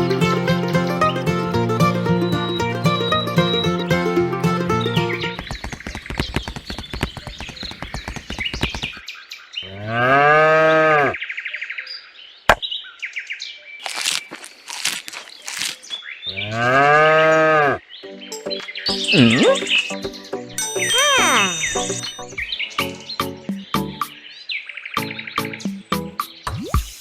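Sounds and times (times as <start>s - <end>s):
rapid clicking: 5.4s - 9.0s.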